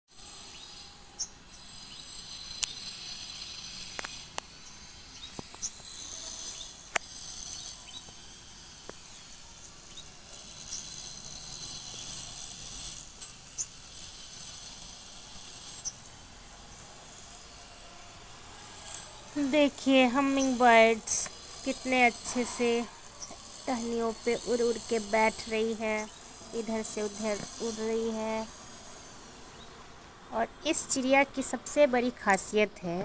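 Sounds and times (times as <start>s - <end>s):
small birds chirping: 0.2s - 16.1s, 18.9s - 33.0s
steady high hiss: 0.2s - 33.0s
sharp clicks: 32.2s - 32.6s.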